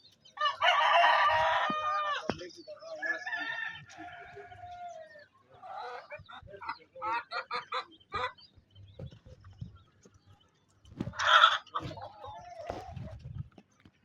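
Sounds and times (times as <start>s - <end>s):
chickens clucking: 0.0s - 14.0s
chicken drawn-out call: 0.4s - 2.3s, 11.1s - 13.1s.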